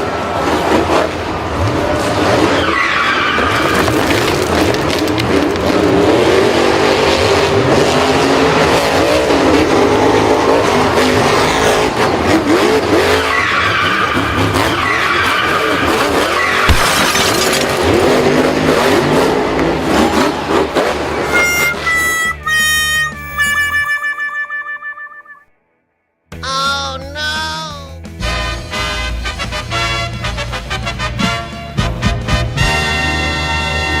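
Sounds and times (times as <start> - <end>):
racing engines revving: 0.0 - 23.5
tyres skidding: 0.0 - 24.3.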